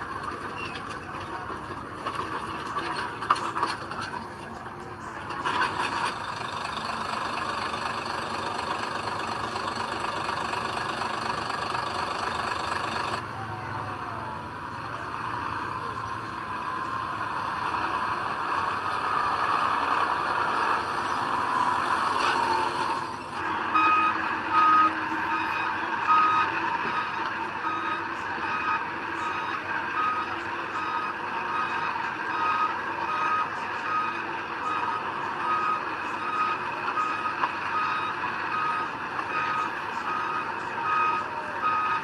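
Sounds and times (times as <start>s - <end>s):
diesel machinery running: 0.0s - 42.0s.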